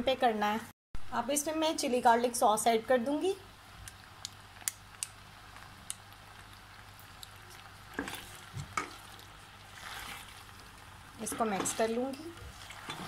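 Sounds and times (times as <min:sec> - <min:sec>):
food sizzling faintly in a pan: 0:00.3 - 0:13.0
wooden spatula stirring: 0:07.4 - 0:13.0.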